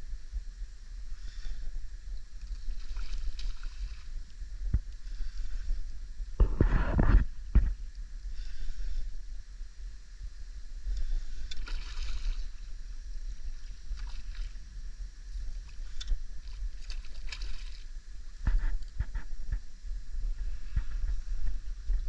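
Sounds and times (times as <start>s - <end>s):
boat engine rumble: 0.0s - 22.0s
hissing water splashes: 11.4s - 12.7s, 15.6s - 17.9s.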